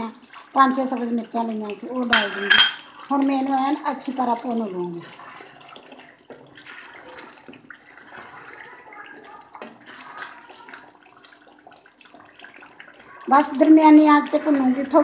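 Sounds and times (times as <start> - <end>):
meat sizzling and bubbling: 0.0 - 15.0
spoon scraping and tapping pan: 2.1 - 2.9.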